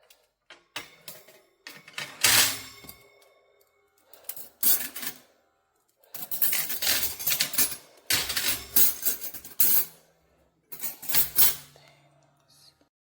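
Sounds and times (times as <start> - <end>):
metal pans and racks clattering: 0.6 - 3.0, 4.4 - 5.2, 6.2 - 10.0, 10.8 - 11.7.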